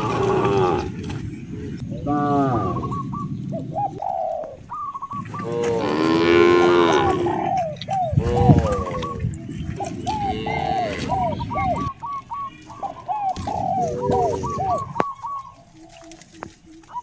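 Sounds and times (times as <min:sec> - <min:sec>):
cattle mooing: 0:00.0 - 0:01.2, 0:02.0 - 0:03.0, 0:05.2 - 0:09.2, 0:09.8 - 0:11.9.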